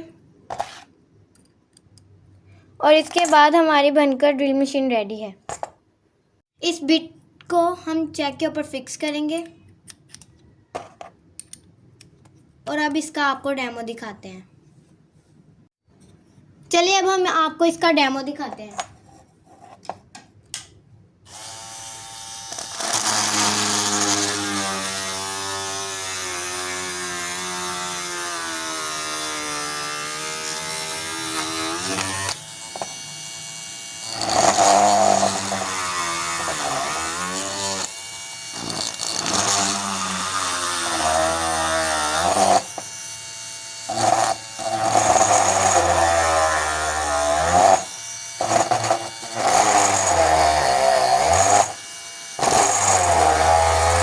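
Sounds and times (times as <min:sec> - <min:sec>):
drill motor whining: 0:21.3 - 0:54.0.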